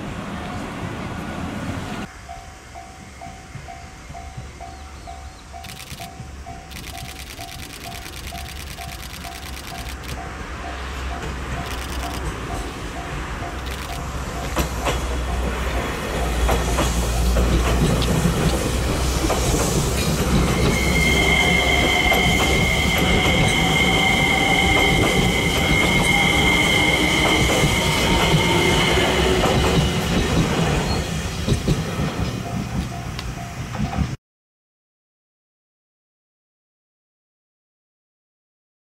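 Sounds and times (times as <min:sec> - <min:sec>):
train rumble: 0:00.0 - 0:34.2
wheels clicking over rail joints: 0:11.1 - 0:20.8
high-pitched wheel squeal: 0:20.1 - 0:30.0.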